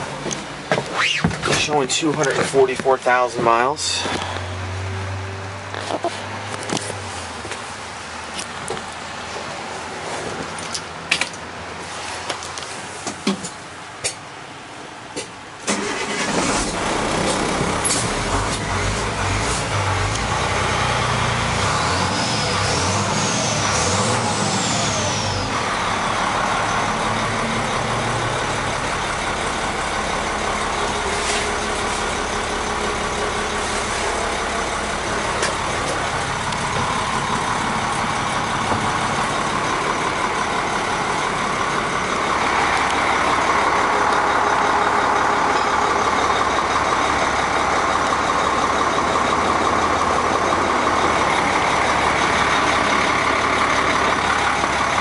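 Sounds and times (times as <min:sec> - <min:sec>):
diesel truck engine running: 0:00.0 - 0:13.0, 0:13.6 - 0:55.0
whine: 0:16.8 - 0:44.6.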